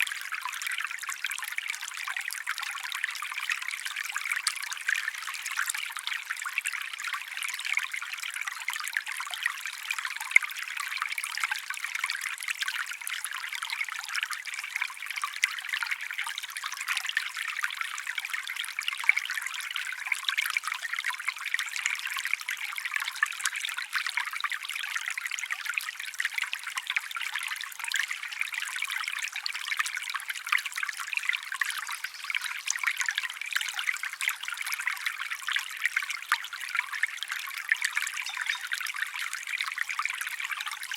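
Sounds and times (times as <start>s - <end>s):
stream trickling over stones: 0.0s - 40.9s.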